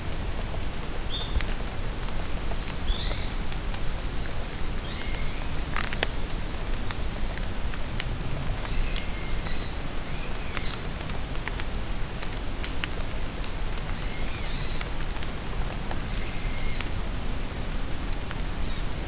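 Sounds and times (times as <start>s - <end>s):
rain falling in forest: 0.0s - 19.0s
songbird singing: 1.1s - 7.8s, 8.6s - 10.9s.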